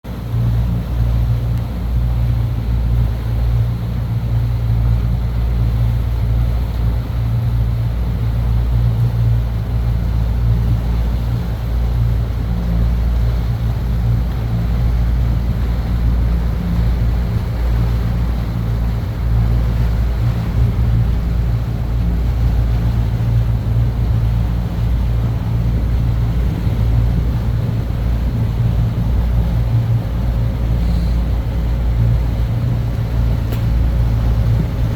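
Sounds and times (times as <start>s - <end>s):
boat engine droning: 0.1s - 34.9s.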